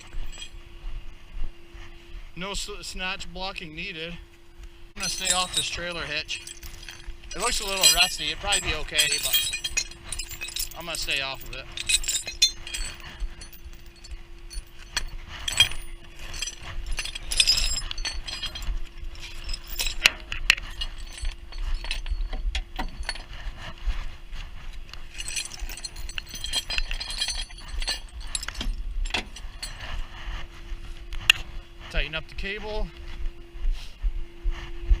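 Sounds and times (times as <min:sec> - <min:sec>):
metal chain and hooks clinking: 0:00.0 - 0:00.6, 0:05.0 - 0:23.7, 0:24.9 - 0:30.0
steady hum: 0:00.0 - 0:35.0.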